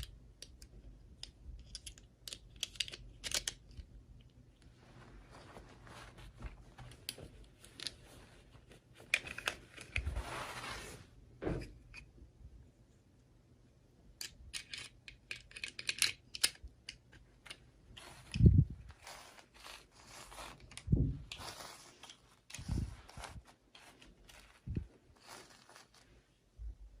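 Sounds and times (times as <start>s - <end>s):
packaging crinkling and tearing: 18.0s - 26.2s.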